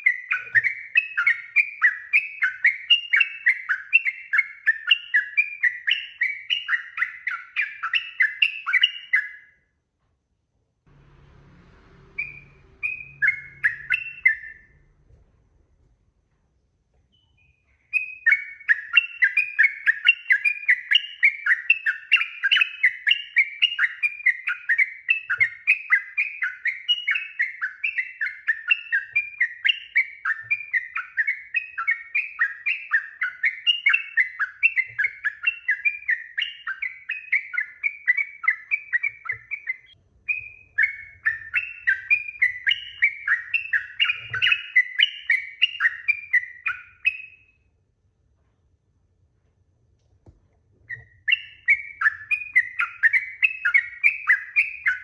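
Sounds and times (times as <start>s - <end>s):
bird singing chattering notes: 12.2s - 14.8s, 17.1s - 47.4s, 50.9s - 55.0s.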